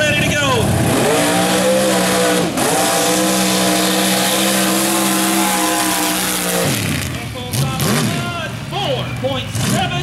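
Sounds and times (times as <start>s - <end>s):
truck engine at full throttle: 0.0s - 10.0s.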